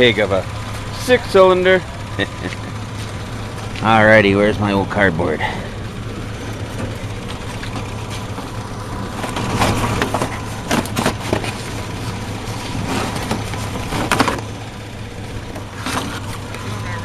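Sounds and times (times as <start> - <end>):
pickup truck engine idling: 0.0 - 17.0
cardboard crinkling and scraping: 6.6 - 14.6, 15.5 - 16.7.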